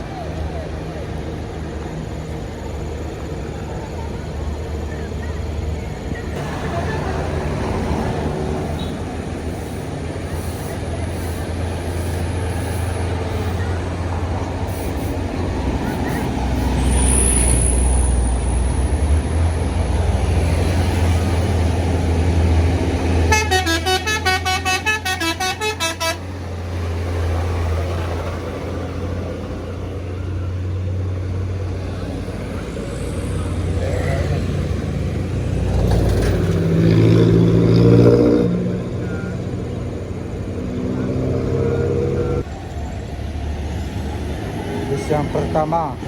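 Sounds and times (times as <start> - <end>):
diesel bus engine droning: 0.0 - 46.0
vehicle horn tooting rapidly: 23.3 - 26.2.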